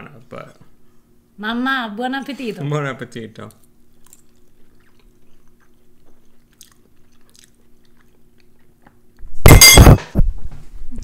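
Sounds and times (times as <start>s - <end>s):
faint steady hum: 0.0s - 11.0s
people chewing quietly: 3.4s - 9.2s.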